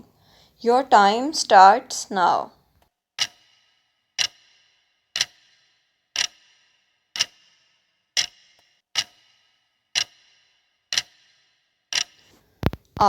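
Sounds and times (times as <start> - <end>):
timer ticks with ringing tail: 3.2 - 12.3.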